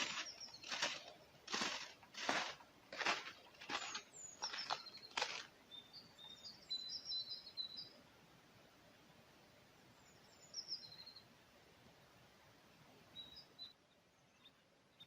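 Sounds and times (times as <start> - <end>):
short scuffing noises: 0.0 - 5.5
small birds chirping: 0.0 - 8.0, 9.9 - 11.3, 13.1 - 15.0.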